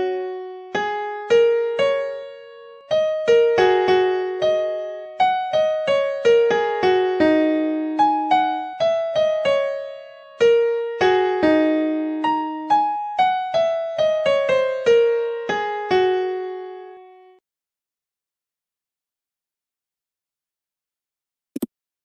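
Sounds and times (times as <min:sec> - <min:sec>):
electric piano melody: 0:00.0 - 0:17.3.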